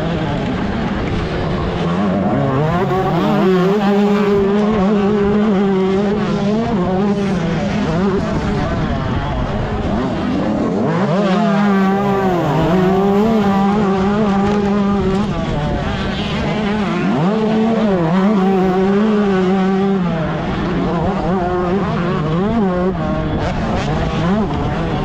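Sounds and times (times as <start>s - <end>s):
motocross bike engine revving: 0.0s - 25.0s.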